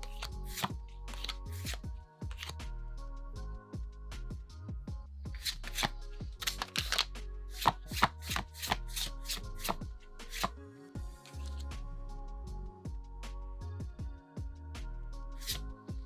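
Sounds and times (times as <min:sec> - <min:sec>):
trading cards snapping and tapping: 0:00.0 - 0:02.6, 0:05.4 - 0:10.5
background music: 0:00.0 - 0:16.0.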